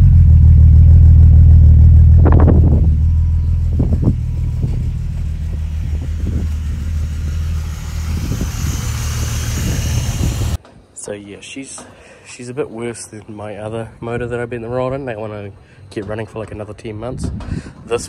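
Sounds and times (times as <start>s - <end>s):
car engine rumbling: 0.0s - 10.6s
engine clattering: 0.0s - 10.6s.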